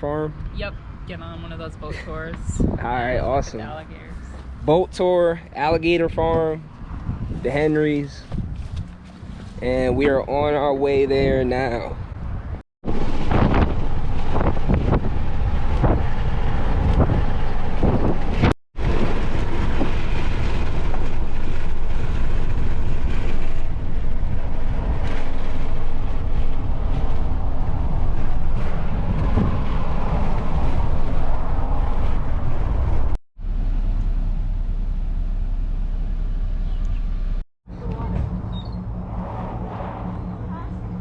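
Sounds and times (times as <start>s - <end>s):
car road and engine rumble: 0.0s - 41.0s
wind buffeting microphone: 0.5s - 33.2s.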